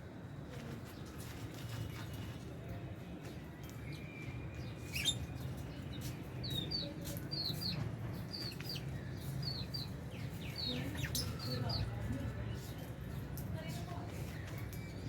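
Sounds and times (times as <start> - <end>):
birds chirping: 3.6 - 15.0.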